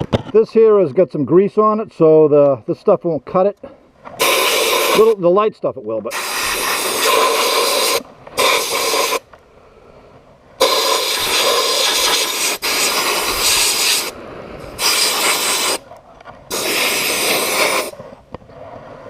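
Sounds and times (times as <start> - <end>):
sandblast gun hissing: 4.2 - 5.2, 6.1 - 9.3, 10.6 - 15.8, 16.5 - 18.1.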